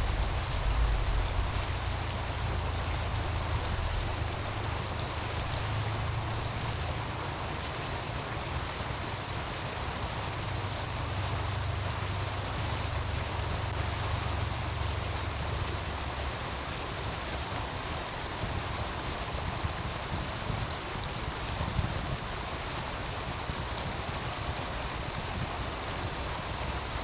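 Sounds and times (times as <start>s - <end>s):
low rumble: 0.0s - 7.1s
stream rushing: 0.0s - 27.0s
wood fire crackling and popping: 0.0s - 27.0s.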